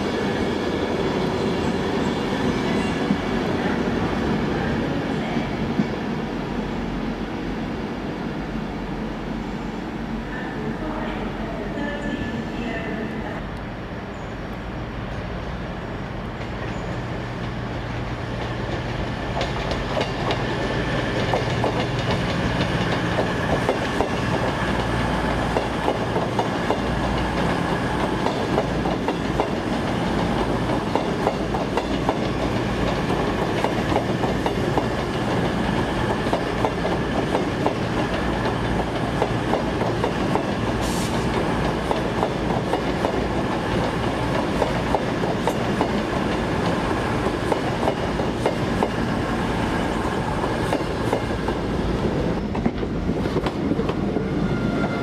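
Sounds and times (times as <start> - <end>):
train wheels clattering: 18.3 - 49.5.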